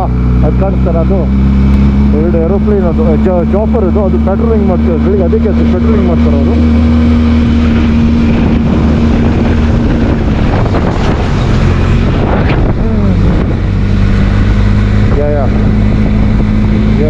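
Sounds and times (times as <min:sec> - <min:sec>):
motorcycle engine humming: 0:00.0 - 0:17.0
wind buffeting microphone: 0:06.5 - 0:17.0.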